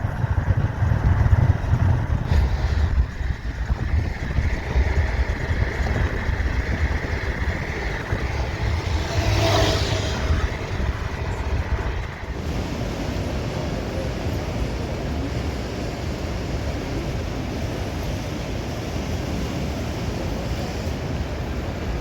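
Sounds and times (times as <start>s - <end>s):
vehicle passing: 0.0s - 13.3s
road traffic rumble: 0.0s - 22.0s.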